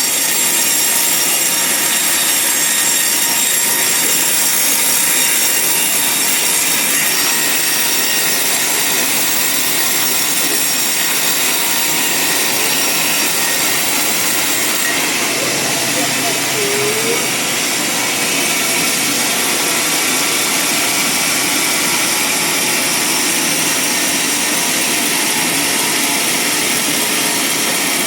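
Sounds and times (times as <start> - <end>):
band saw cutting log: 0.0 - 21.0.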